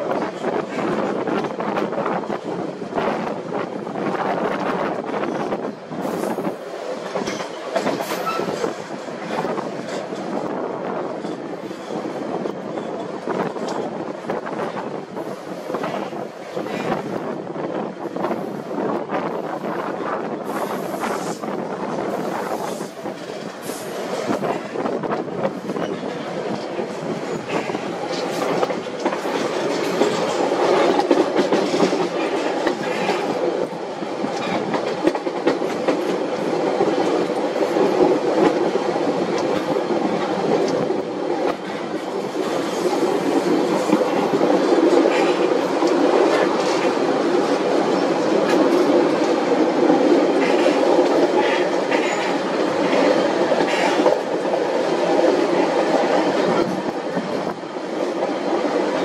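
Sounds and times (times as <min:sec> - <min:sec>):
train wheels rumbling on rails: 0:00.0 - 0:59.0
sharp track clicks: 0:20.9 - 0:59.0.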